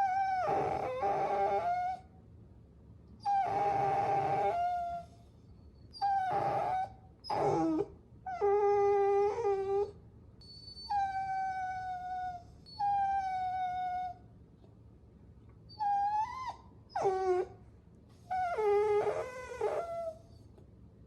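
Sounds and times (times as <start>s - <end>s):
puppies whining: 0.0s - 2.0s, 3.2s - 5.2s, 5.9s - 14.2s, 15.7s - 17.6s, 18.2s - 20.4s.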